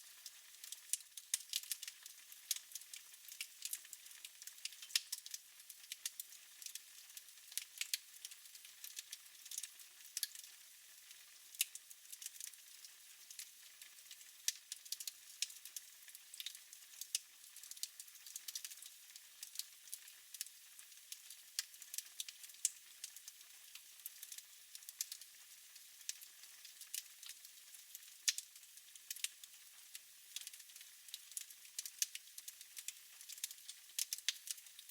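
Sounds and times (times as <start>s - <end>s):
wood fire crackling: 26.9s - 27.4s, 32.8s - 34.8s.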